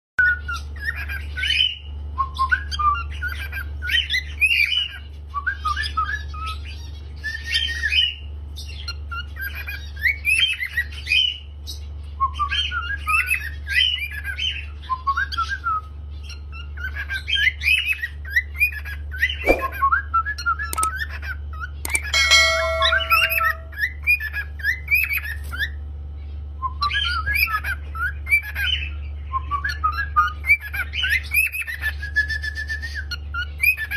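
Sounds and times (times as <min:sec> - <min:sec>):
cockatiel chirping and warbling: 0:16.2 - 0:19.9, 0:26.8 - 0:28.9
short steady tone: 0:21.9 - 0:23.8.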